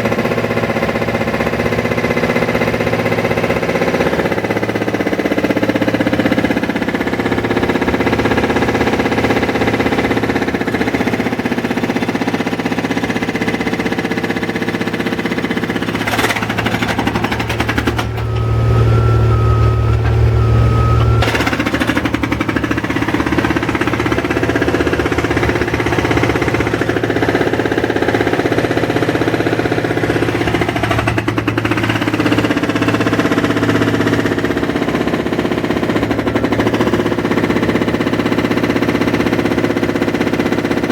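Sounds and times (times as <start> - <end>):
engine running: 0.0 - 40.9
breaker hammering rapidly: 3.4 - 39.6
steady tone: 18.1 - 27.1.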